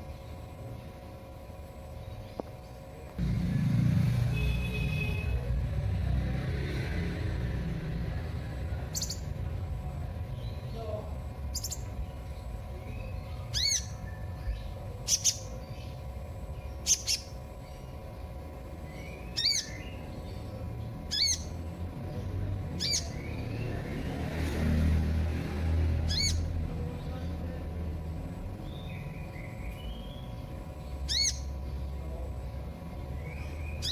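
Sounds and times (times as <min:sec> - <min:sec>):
bird high chirps: 0:08.9 - 0:09.3, 0:12.8 - 0:16.0, 0:16.6 - 0:18.0, 0:18.8 - 0:20.5, 0:21.1 - 0:21.6, 0:22.8 - 0:23.8, 0:28.6 - 0:31.8, 0:33.2 - 0:33.9.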